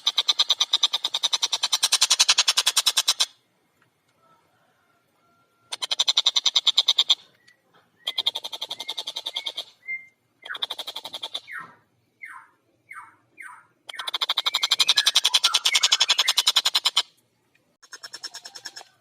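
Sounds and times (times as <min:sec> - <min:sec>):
kingfisher rapid cackling: 0:14.0 - 0:17.1.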